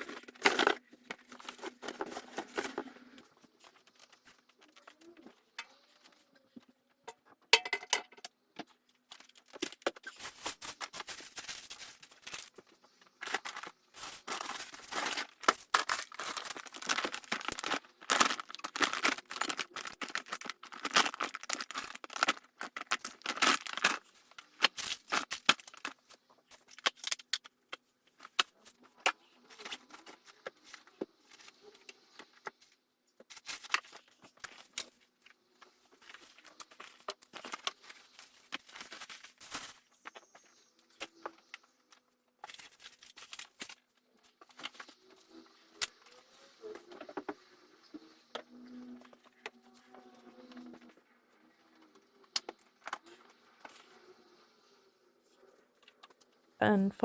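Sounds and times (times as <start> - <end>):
rustling and crinkling: 0.0 - 7.5, 8.1 - 56.5
objects knocking: 7.1 - 8.3.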